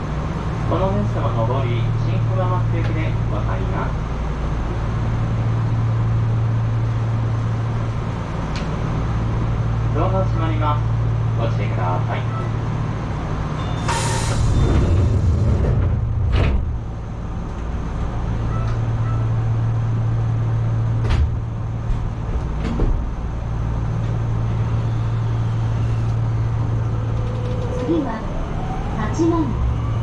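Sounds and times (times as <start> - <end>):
electric train humming: 12.3 - 30.0.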